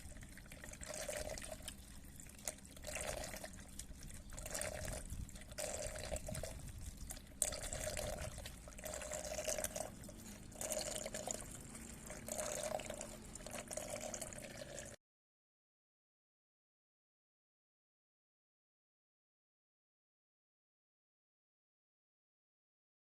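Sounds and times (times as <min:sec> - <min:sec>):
liquid pouring and gurgling: 0:00.0 - 0:15.0.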